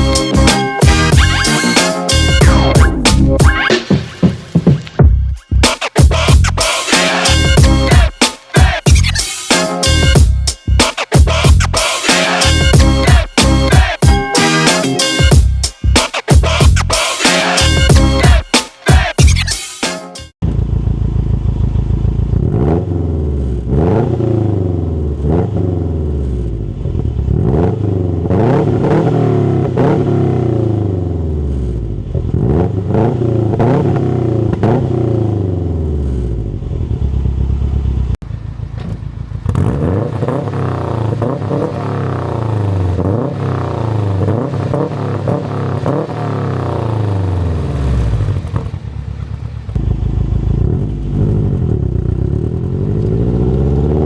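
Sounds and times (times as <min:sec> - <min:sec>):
car engine revving: 0:11.1 - 0:15.4, 0:20.4 - 0:54.0.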